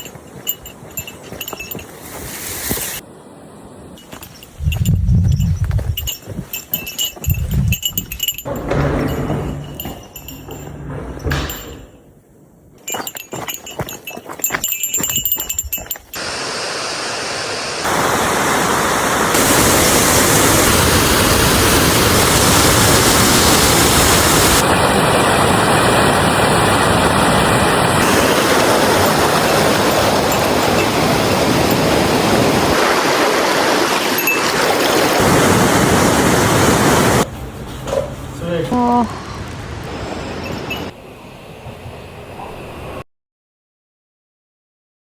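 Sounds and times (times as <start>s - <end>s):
footsteps on rocky ground: 0.0s - 3.0s, 3.9s - 10.7s, 12.8s - 16.2s
flowing water rushing: 0.0s - 4.8s, 16.1s - 37.3s.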